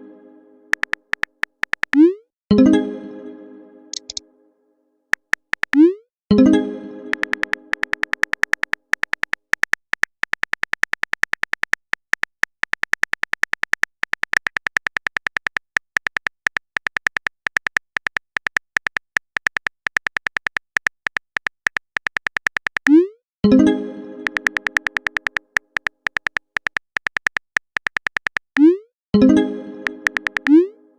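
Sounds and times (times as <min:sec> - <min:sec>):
typing clicks with beeps: 0:00.7 - 0:02.2, 0:04.0 - 0:04.2, 0:05.2 - 0:06.0, 0:07.1 - 0:23.2, 0:24.2 - 0:28.9, 0:29.8 - 0:30.7.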